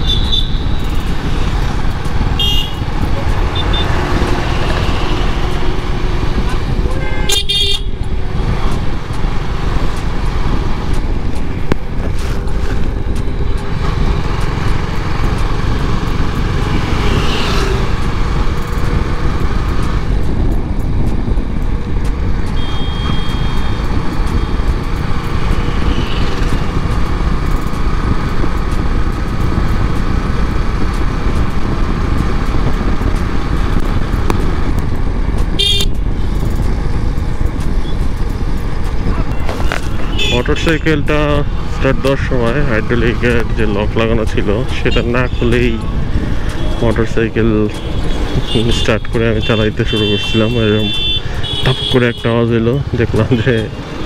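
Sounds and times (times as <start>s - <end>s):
vehicle horn toots: 0.0s - 1.0s, 2.4s - 2.9s, 3.5s - 5.8s, 6.5s - 8.0s, 22.5s - 23.8s, 35.6s - 36.0s, 39.3s - 40.5s, 47.8s - 52.4s
wind and road rumble: 0.0s - 54.0s.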